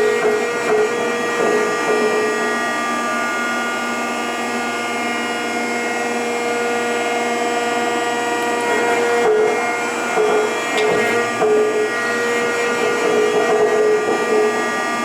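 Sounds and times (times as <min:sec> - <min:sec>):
hydraulic drive whining: 0:07.6 - 0:15.0.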